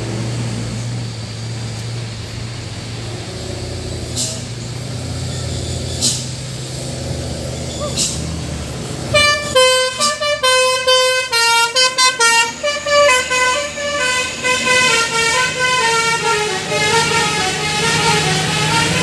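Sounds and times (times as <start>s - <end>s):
truck diesel engine running: 0.0s - 19.0s
air hiss: 0.7s - 5.0s
musical horn playing fast tune: 9.1s - 19.0s.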